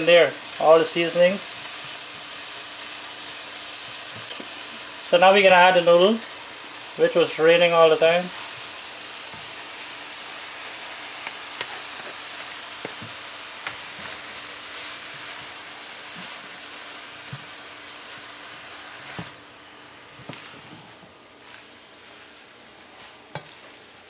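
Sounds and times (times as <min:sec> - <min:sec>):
noodles sizzling in a pan: 0:00.0 - 0:24.0
spatula tapping and scraping: 0:11.2 - 0:12.2, 0:12.8 - 0:14.2, 0:23.0 - 0:23.8.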